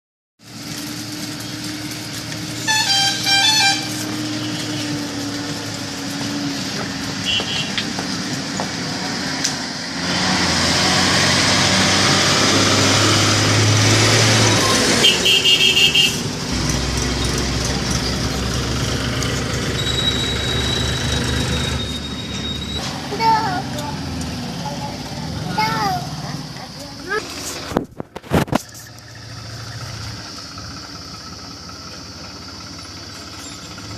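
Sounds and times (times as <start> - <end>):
diesel tractor engine running: 0.4 - 33.9
vehicle horn honking: 2.6 - 5.0, 7.2 - 7.9, 14.7 - 16.3.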